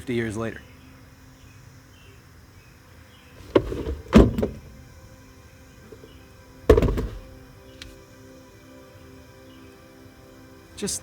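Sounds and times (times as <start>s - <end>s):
soft background music: 0.0s - 11.0s
heavy thunks of car body: 3.4s - 5.2s, 5.9s - 7.5s.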